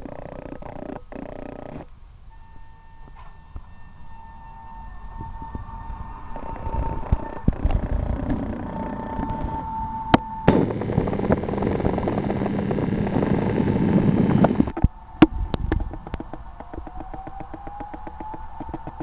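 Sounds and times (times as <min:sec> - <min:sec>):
tram motor whine rising: 0:02.0 - 0:19.0
loud rushing hiss: 0:04.0 - 0:19.0
fast regular clicking: 0:10.5 - 0:19.0.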